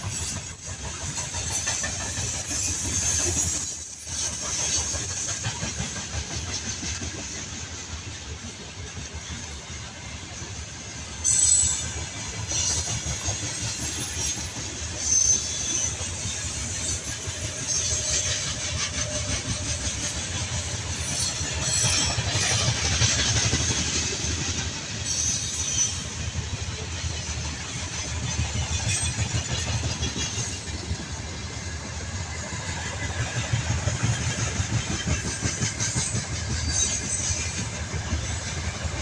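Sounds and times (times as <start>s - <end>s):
train wheels clattering on rails: 0.0s - 39.0s
high wheel squeals: 1.8s - 4.9s, 11.2s - 20.1s, 25.0s - 26.3s, 36.0s - 38.4s.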